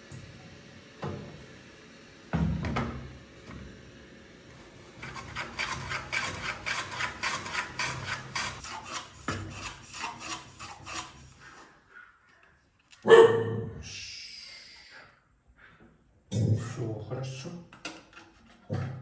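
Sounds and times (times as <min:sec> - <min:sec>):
hand tool rasping on wood: 0:04.8 - 0:11.7.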